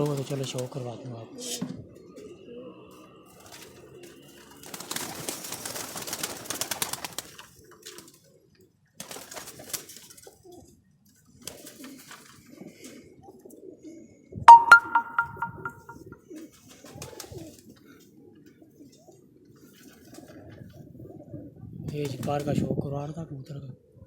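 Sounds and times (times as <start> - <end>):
wings flapping and scuffling: 0.0 - 0.7, 3.4 - 8.2, 9.0 - 10.4, 11.4 - 12.5.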